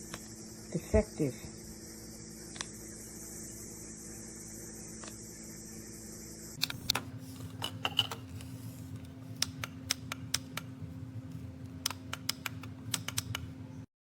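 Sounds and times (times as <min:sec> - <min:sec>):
steady low hum: 0:00.0 - 0:13.9
sharp clicks and taps: 0:11.8 - 0:13.4.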